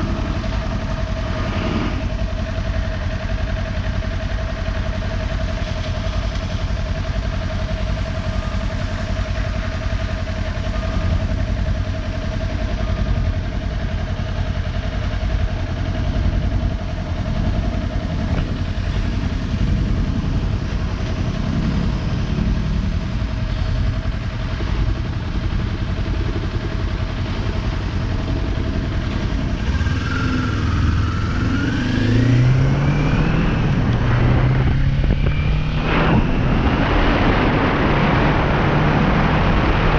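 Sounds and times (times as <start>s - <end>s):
motorcycle engine accelerating: 0.0s - 9.6s, 15.8s - 39.9s
road noise: 0.0s - 39.9s
wind noise: 16.0s - 21.0s, 29.5s - 39.9s.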